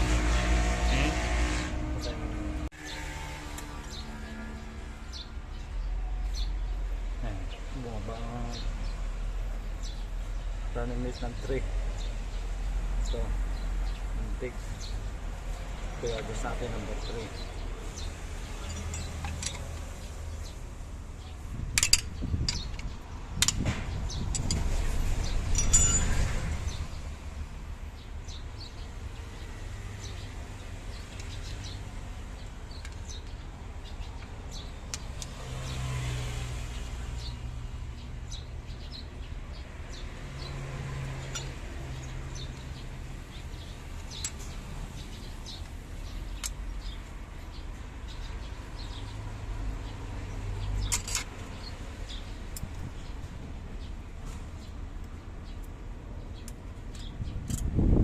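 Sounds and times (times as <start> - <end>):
small birds chirping: 1.9 - 27.2, 27.8 - 58.0
metal tools clicking on engine: 18.4 - 20.2, 21.7 - 26.5, 41.0 - 44.6, 45.5 - 47.0, 50.7 - 53.0, 55.0 - 58.0
ringing metallic clink: 25.5 - 26.4.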